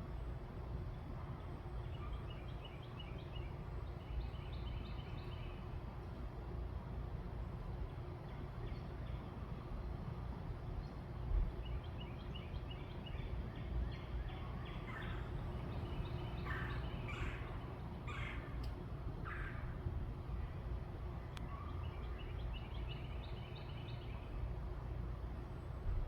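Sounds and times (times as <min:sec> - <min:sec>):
low outdoor rumble: 0:00.0 - 0:26.0
coarse bird calls: 0:14.4 - 0:19.8.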